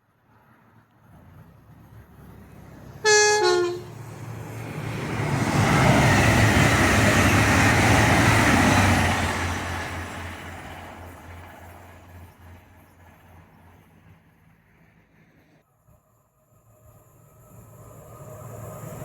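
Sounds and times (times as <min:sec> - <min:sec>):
train passing at speed: 0:00.0 - 0:19.0
two-note train horn: 0:03.0 - 0:04.0.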